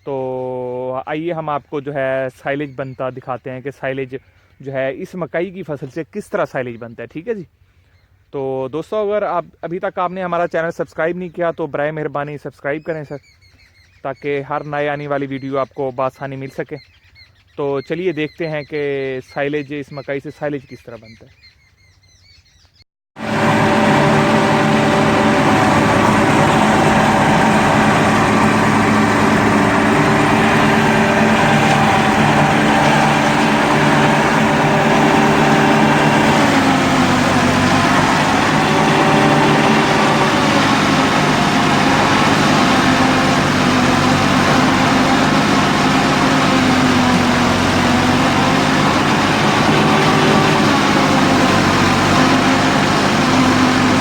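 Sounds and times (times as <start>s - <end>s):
machine engine running: 23.2s - 54.0s.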